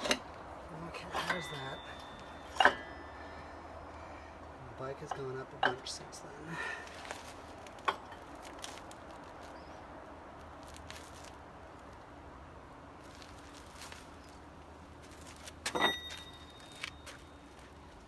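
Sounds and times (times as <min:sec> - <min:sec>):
ringing metal clank: 0:00.0 - 0:04.2, 0:05.0 - 0:06.0, 0:15.7 - 0:17.4
handling noises: 0:00.0 - 0:12.0, 0:13.0 - 0:18.0.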